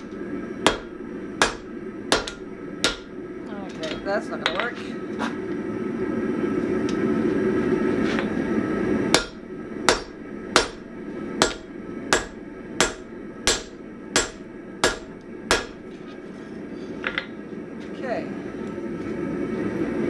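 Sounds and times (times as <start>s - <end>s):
hammer ringing on anvil: 0.7s - 3.2s, 9.2s - 15.9s.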